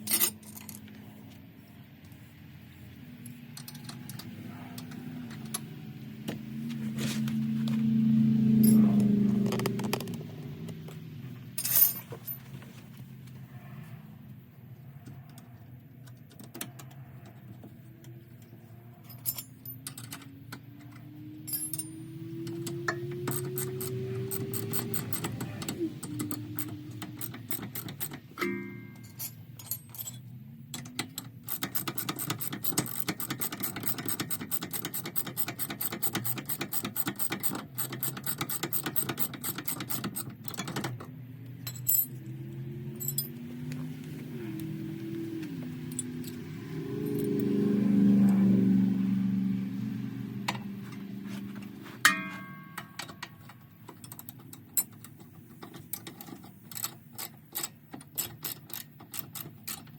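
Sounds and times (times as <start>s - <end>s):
droning sound with stepping pitch: 4.2s - 11.6s, 41.7s - 53.0s
ratchet wrench clicking: 19.3s - 41.0s, 52.0s - 59.9s.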